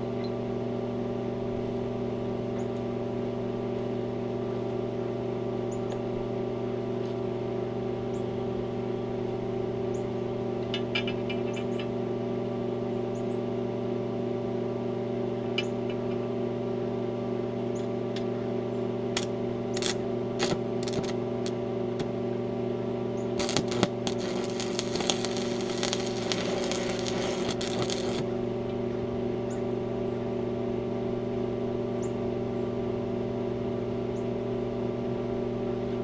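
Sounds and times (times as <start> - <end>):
welding machine hum: 17.8 - 29.2
crackling weld arc: 19.1 - 22.2, 23.3 - 28.8.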